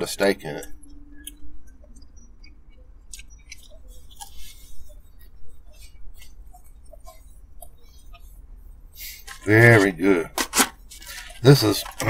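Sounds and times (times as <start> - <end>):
steady low hum: 0.0 - 12.0
chewing and mouth clicks: 0.6 - 8.4
paper packaging crinkling: 9.2 - 12.0.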